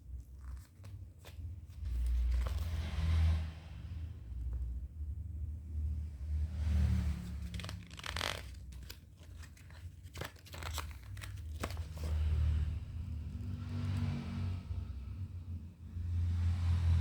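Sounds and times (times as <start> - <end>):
paper crinkling and rustling: 0.1 - 2.8, 7.4 - 12.4.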